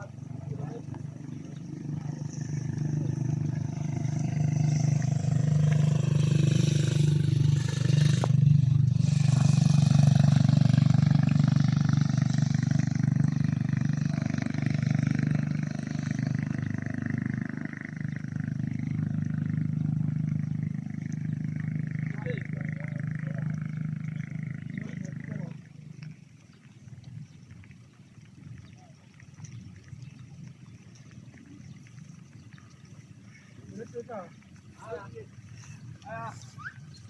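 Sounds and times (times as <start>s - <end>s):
heavy vehicle engine under load: 2.2s - 18.0s.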